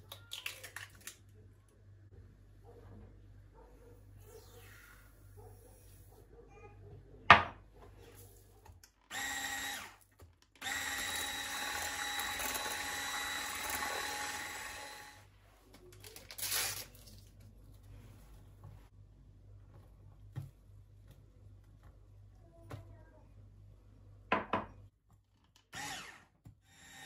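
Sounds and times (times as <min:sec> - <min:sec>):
kitchen appliance motor running: 0:10.6 - 0:15.2.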